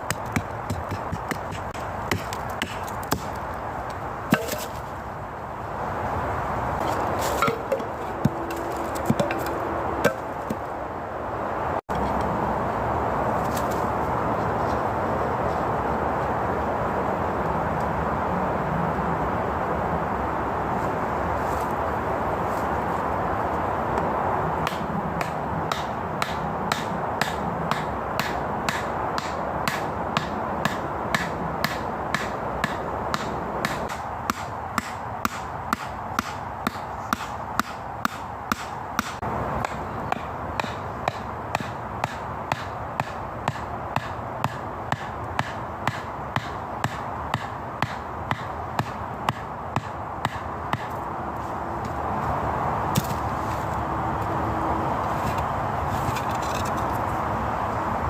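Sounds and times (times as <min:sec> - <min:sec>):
hand tool striking wood: 0:00.0 - 0:03.4, 0:04.3 - 0:04.8, 0:06.8 - 0:10.7, 0:24.6 - 0:51.0.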